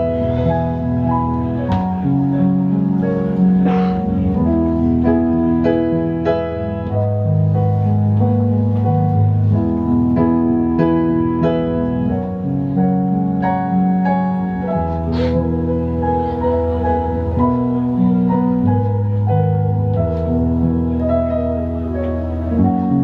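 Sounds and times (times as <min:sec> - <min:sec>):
piano chords: 0:00.0 - 0:23.0.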